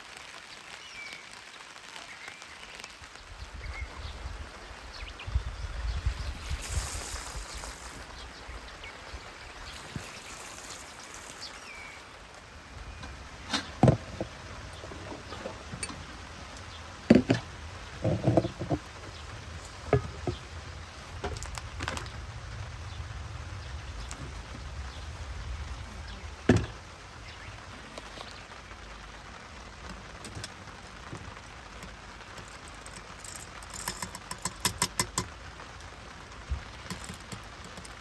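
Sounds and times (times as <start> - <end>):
low steady rumble: 12.0 - 29.3
sharp knocks and clunks: 12.9 - 20.6, 26.5 - 26.8.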